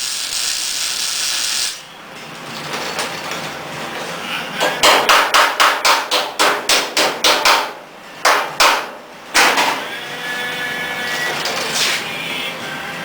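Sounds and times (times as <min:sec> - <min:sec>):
hammer striking sheet metal: 0:04.7 - 0:09.9.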